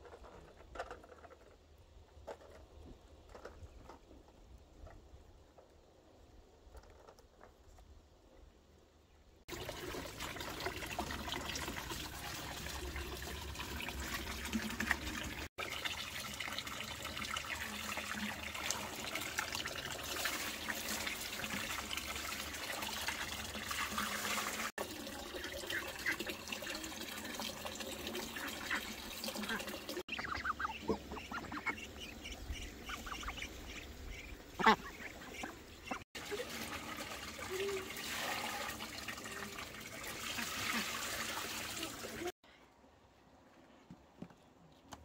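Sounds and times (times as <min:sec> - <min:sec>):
running water splashing: 0:09.5 - 0:42.4.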